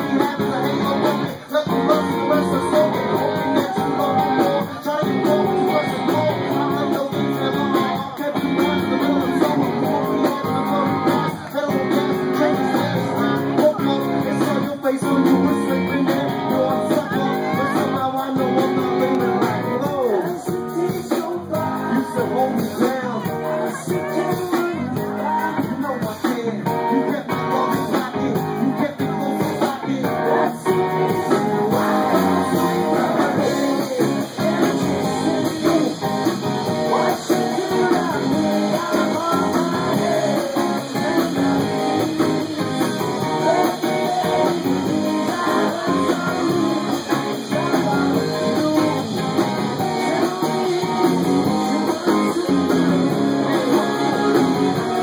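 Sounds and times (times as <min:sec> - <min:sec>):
band music with strummed guitar: 0:00.0 - 0:55.0.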